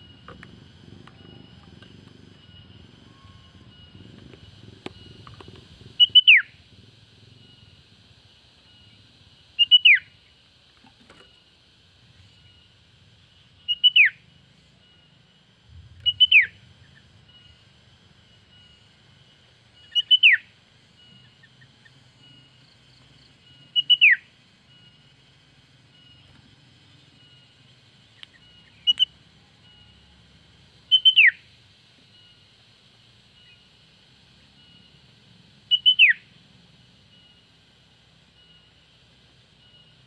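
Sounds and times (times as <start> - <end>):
bulbul calling: 0.0 - 7.8, 9.6 - 10.4, 13.6 - 15.2, 15.9 - 22.7, 23.4 - 25.2, 27.0 - 30.0, 30.9 - 31.5, 35.7 - 36.4
faint high chirps: 0.0 - 40.0.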